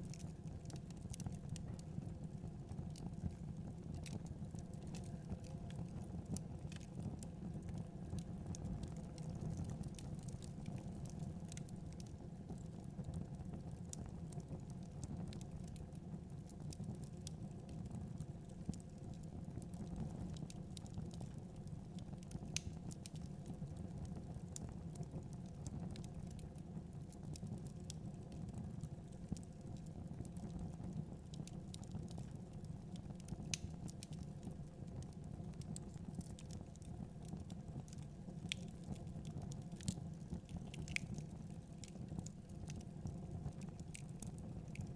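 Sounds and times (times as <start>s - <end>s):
wood fire crackling: 0.0s - 44.9s
sharp pops of fire: 40.6s - 41.2s.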